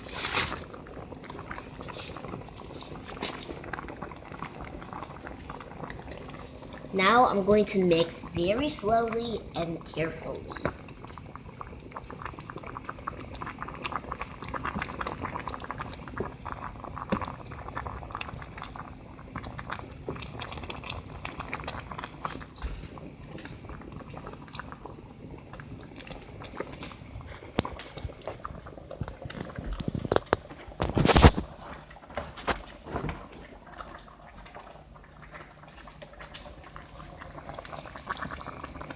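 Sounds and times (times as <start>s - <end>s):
soup bubbling and popping: 0.0s - 38.9s.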